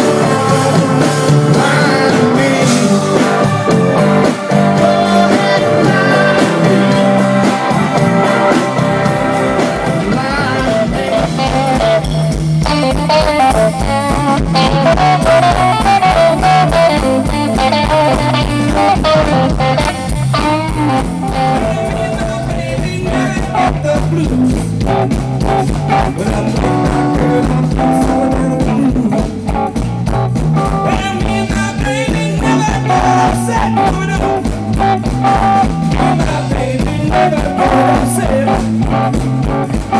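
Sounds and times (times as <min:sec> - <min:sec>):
blues band playing: 0:00.0 - 0:39.9
guitar with string bends: 0:00.0 - 0:39.9.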